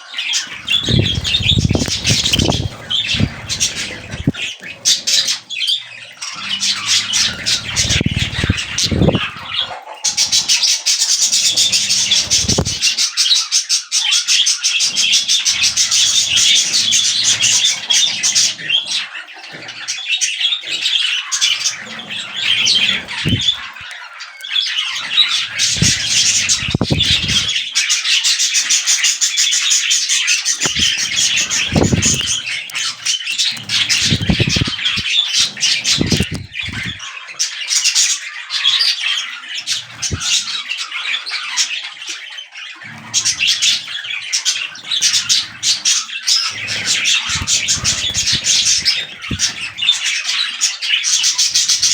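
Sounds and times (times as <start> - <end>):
budgerigars chattering and warbling: 0.0 - 51.9.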